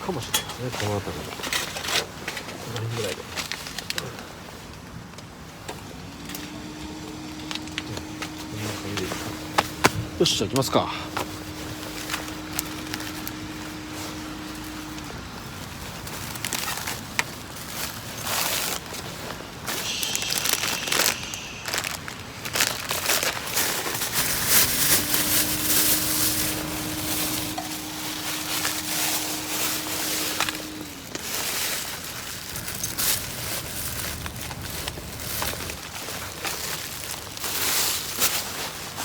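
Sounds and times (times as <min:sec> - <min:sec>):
kindling crackling in fire: 0:00.1 - 0:39.0
faint steady hum: 0:03.2 - 0:39.0.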